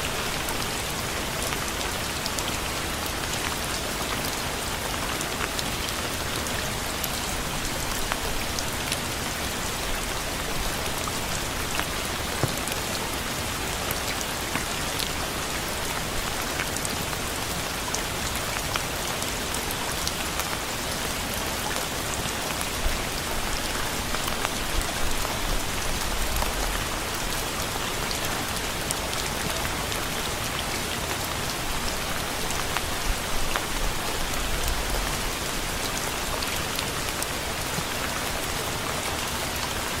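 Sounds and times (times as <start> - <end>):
rain falling on a surface: 0.0 - 40.0.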